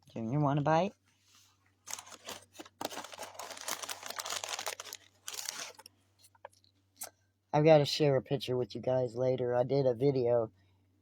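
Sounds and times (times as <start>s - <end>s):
packaging crinkling and rustling: 1.8s - 5.9s.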